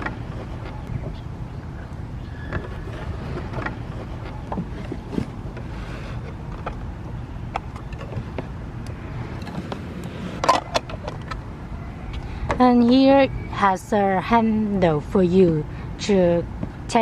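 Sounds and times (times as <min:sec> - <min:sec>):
wind rumble on microphone: 0:00.0 - 0:13.7.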